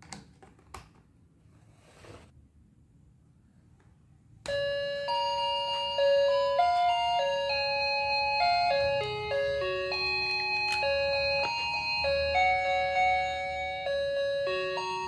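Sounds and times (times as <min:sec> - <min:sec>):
chime-like melody: 0:04.5 - 0:15.0.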